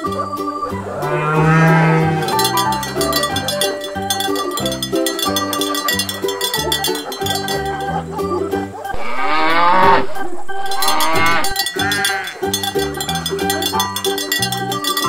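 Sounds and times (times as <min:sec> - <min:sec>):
background music: 0:00.0 - 0:15.0
cow mooing: 0:00.7 - 0:03.4, 0:09.0 - 0:12.4.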